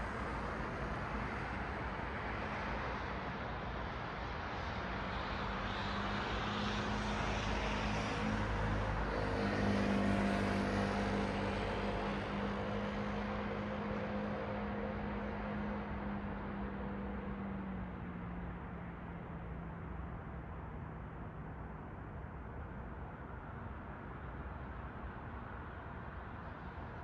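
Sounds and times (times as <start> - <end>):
passing vehicle: 5.1 - 21.8.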